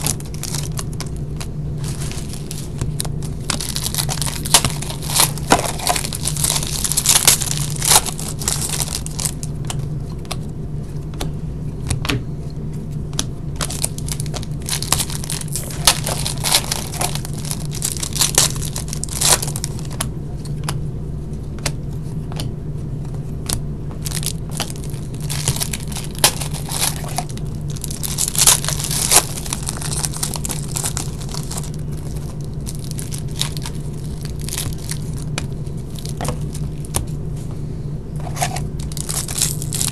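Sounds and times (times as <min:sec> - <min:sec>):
wrappers torn and crinkled: 0:00.0 - 0:09.5, 0:13.6 - 0:20.0, 0:24.0 - 0:37.0, 0:38.2 - 0:39.9
low hum: 0:00.0 - 0:39.9.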